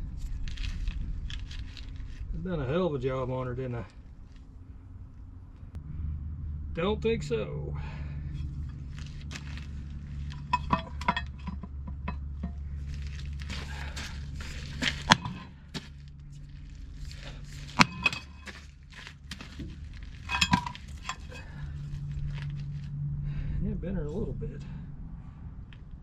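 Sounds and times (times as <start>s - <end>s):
steady low hum: 0.0s - 26.0s
metal tools clanking: 8.3s - 16.0s, 17.0s - 22.6s.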